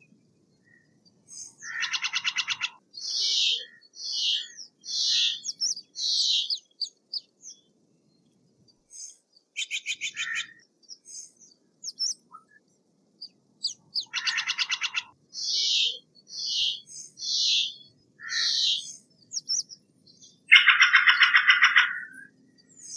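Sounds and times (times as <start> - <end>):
jay harsh rasping calls: 13.7 - 15.1.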